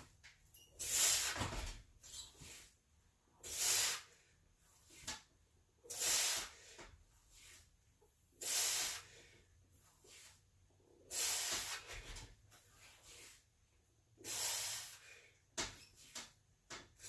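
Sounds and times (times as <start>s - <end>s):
hard hissing breaths out: 3.4s - 4.2s, 5.9s - 6.8s, 8.4s - 9.4s, 11.1s - 12.1s, 14.2s - 15.4s.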